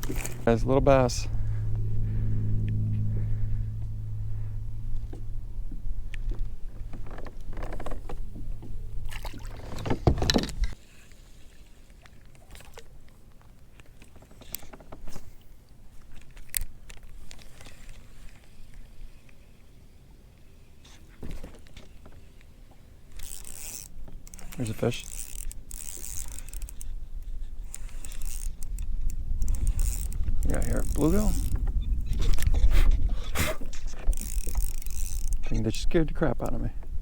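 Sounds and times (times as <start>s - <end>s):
motor humming low: 0.0s - 10.8s.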